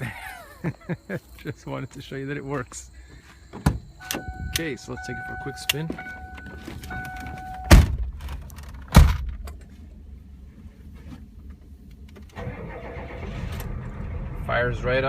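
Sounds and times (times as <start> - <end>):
loud thumps: 7.6 - 9.4
diesel engine starting and idling: 11.9 - 15.0.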